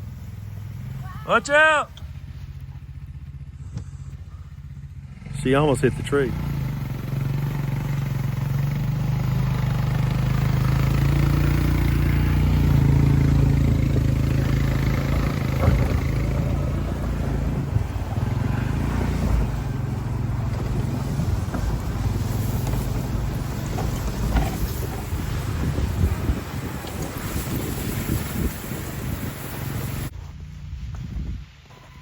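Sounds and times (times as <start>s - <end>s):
atv engine running: 0.0s - 32.0s
rushing hiss: 21.8s - 30.1s.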